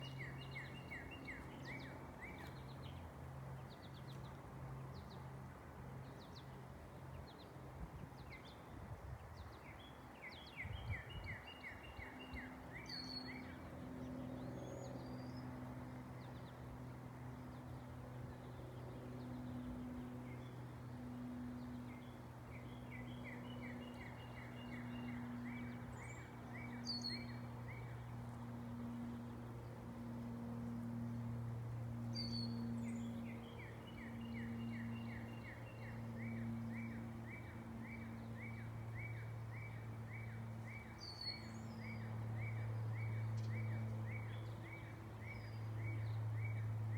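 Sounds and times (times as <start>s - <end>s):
propeller plane droning overhead: 0.0s - 46.9s
birds chirping: 21.6s - 29.4s, 32.1s - 46.8s.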